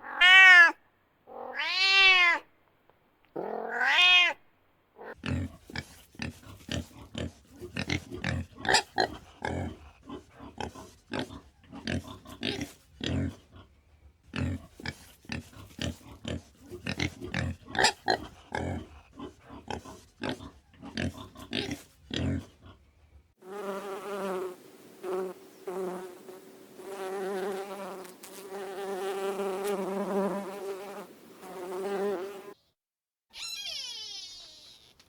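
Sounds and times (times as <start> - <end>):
animal grunts: 5.0 - 22.9
insect buzzing: 23.4 - 32.6.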